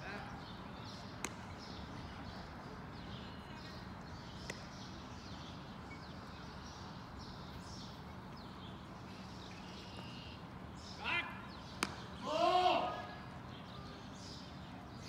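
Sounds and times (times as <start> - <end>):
birds chirping: 0.0 - 15.0
baseball smacking into leather glove: 1.2 - 1.5, 11.8 - 12.1.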